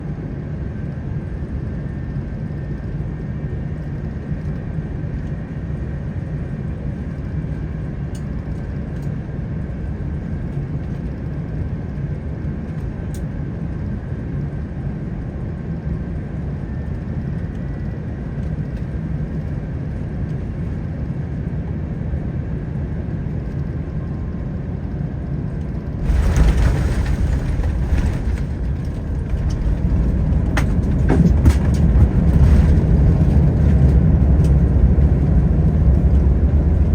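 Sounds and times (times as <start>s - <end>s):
jet engine hum: 0.1s - 36.9s
wheels touching down rumble: 26.0s - 36.9s.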